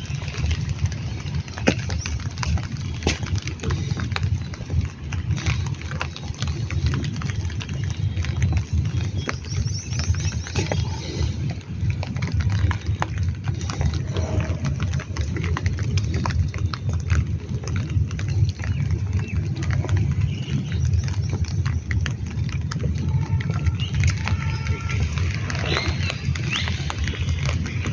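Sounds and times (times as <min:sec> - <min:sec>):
heavy rain rumble: 0:00.0 - 0:27.9
raindrops ticking: 0:00.0 - 0:27.9.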